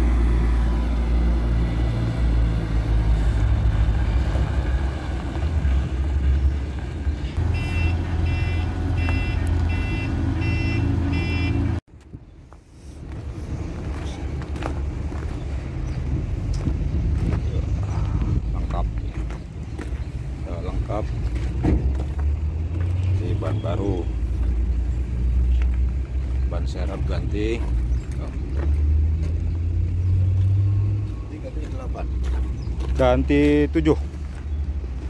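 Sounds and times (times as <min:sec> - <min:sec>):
diesel truck engine rumbling: 0:00.0 - 0:35.0
reversing alarm beeping: 0:07.5 - 0:11.8.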